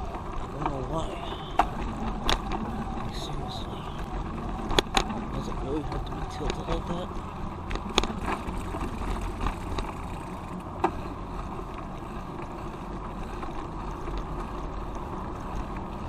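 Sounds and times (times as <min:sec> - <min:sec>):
bicycle tyre and road noise: 0:00.0 - 0:16.0.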